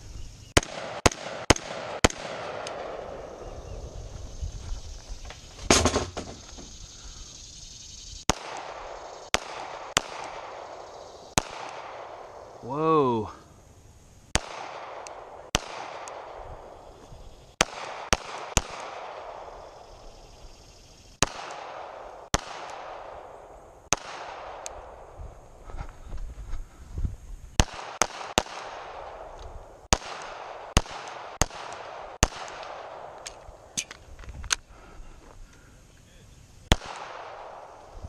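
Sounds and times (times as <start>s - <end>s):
gunshots with echo: 0.6s - 3.7s, 8.3s - 13.2s, 14.4s - 16.8s, 17.6s - 19.7s, 21.2s - 25.0s, 29.9s - 33.2s.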